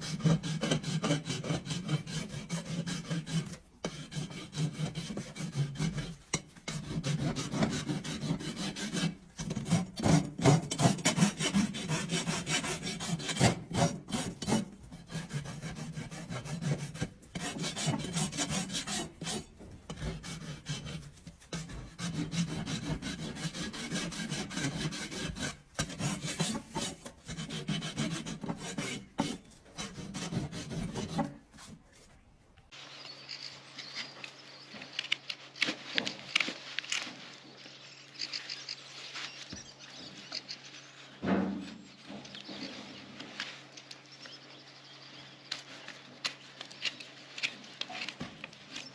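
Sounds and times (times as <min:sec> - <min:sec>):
rasp filing a hoof: 0:00.0 - 0:32.0.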